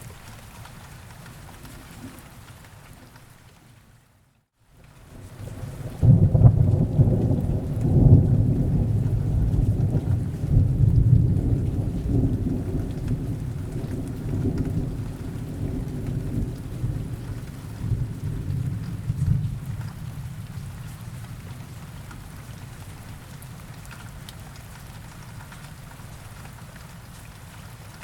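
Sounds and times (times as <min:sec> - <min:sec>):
rain falling: 0:00.0 - 0:28.0
deep rolling thunder: 0:05.5 - 0:22.3.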